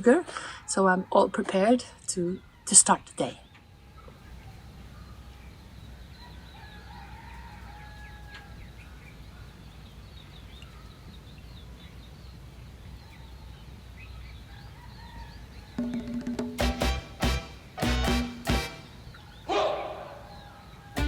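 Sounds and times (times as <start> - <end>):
birds chirping: 0.0 - 21.0
faint roosters crowing: 3.5 - 11.1, 12.9 - 16.4, 19.0 - 21.0.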